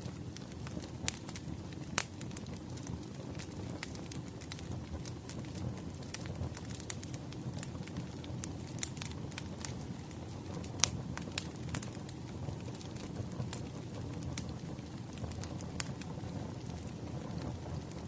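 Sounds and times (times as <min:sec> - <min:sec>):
rumble of flames: 0:00.0 - 0:18.0
wood fire pops and snaps: 0:00.0 - 0:18.0.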